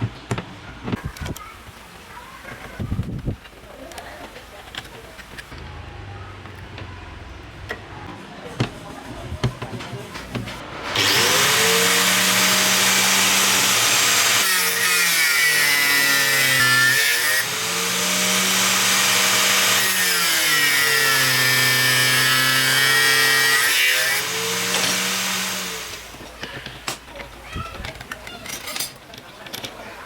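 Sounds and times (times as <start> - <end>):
angle grinder cutting: 10.8 - 26.2.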